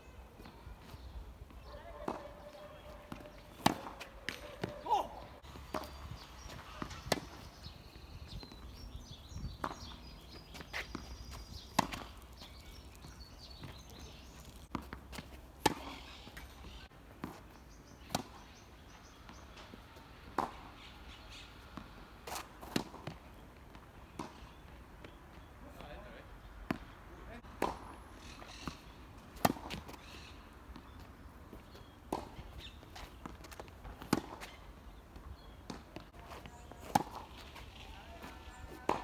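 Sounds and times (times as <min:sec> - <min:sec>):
tennis ball bouncing: 0:00.4 - 0:25.2, 0:26.6 - 0:39.0
racket striking tennis ball: 0:02.0 - 0:17.4, 0:20.3 - 0:21.0, 0:27.4 - 0:30.0, 0:35.7 - 0:39.0.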